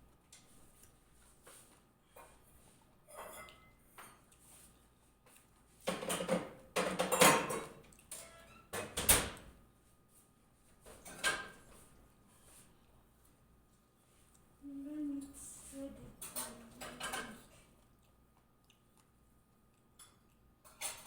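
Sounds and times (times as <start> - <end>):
biting and chewing eggplant: 17.6 - 20.6.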